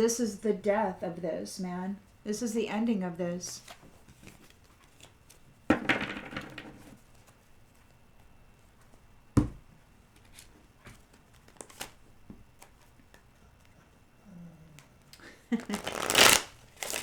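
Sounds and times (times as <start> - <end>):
cards sliding rustle: 15.6 - 17.0.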